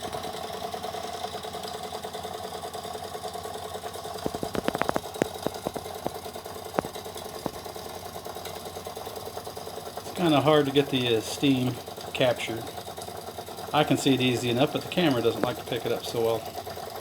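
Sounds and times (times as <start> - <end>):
sharp clicks: 4.2 - 7.8, 14.6 - 16.4
toy steam engines clattering: 9.6 - 17.0.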